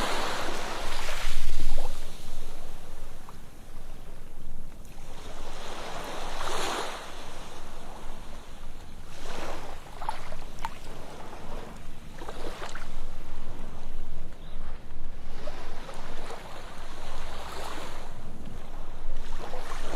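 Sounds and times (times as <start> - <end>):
surf washing onto beach: 0.0 - 4.2.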